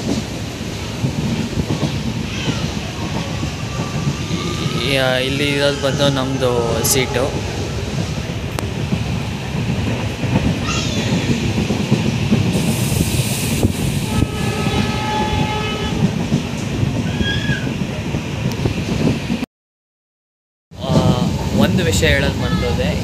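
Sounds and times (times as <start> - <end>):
train rumbling on rails: 0.0 - 19.4, 20.8 - 23.0
train horn: 4.1 - 8.6, 14.0 - 16.2.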